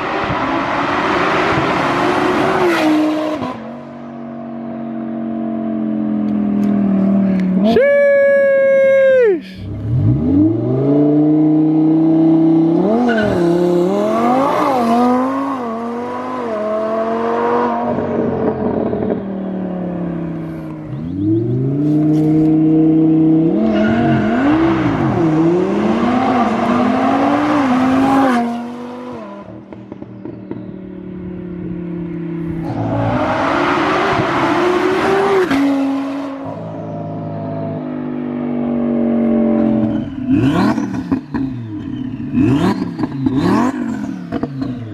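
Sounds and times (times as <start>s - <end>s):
loud rushing noise: 32.6s - 36.4s
sports car engine revving hard: 38.9s - 44.9s.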